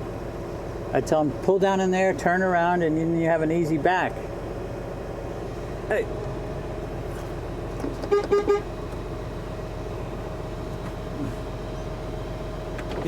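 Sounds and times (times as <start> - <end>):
truck engine idling: 0.0 - 13.0
truck horn tooting: 8.0 - 8.9.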